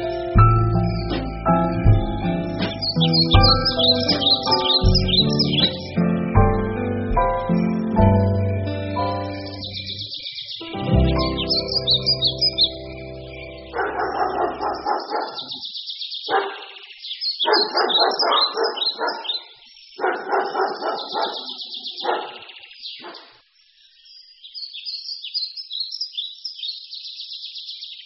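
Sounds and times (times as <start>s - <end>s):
birds chirping and twittering: 0.0s - 28.0s
harsh pulsed bird call: 2.2s - 6.4s, 7.5s - 19.4s.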